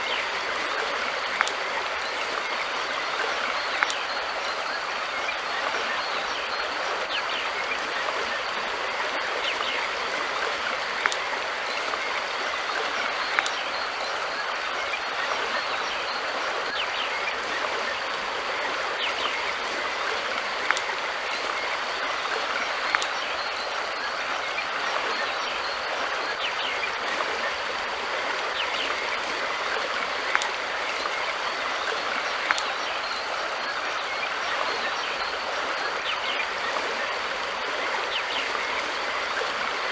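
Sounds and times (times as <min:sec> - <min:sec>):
river water rushing: 0:00.0 - 0:39.9
sharp clicks or splashes: 0:01.2 - 0:01.8, 0:02.4 - 0:04.2, 0:09.4 - 0:12.1, 0:13.2 - 0:13.8, 0:19.1 - 0:23.3, 0:28.4 - 0:31.2, 0:31.8 - 0:33.2.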